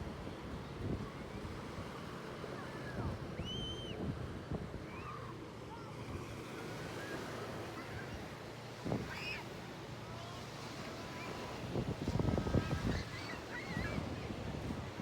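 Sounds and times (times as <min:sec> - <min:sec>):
wind noise on microphone: 0:03.0 - 0:04.8, 0:08.8 - 0:09.2, 0:11.5 - 0:15.0
sea waves washing ashore: 0:04.1 - 0:15.0.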